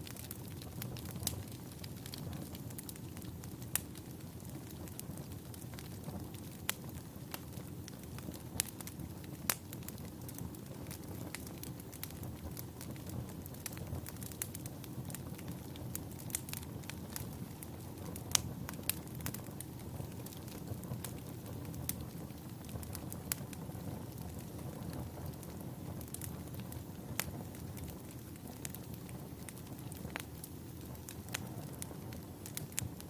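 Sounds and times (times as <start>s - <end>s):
fire crackling and popping: 0.0s - 33.0s.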